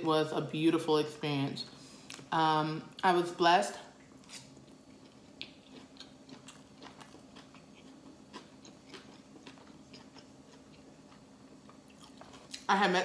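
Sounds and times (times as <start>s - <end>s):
person chewing with mouth clicks: 4.2s - 12.7s.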